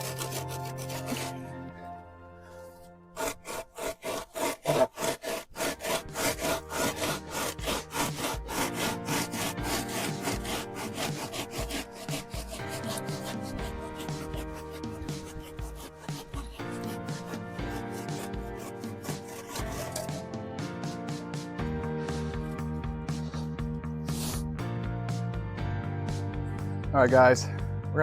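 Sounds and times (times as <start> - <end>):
board scraping wet concrete: 0.0 - 1.7, 3.1 - 21.4
background music: 0.0 - 28.0.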